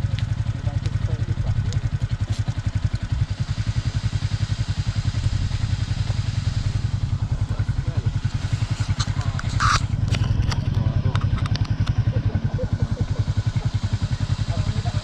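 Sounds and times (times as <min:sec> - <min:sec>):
scooter engine running: 0:00.0 - 0:15.0
sharp clicks: 0:08.7 - 0:12.1.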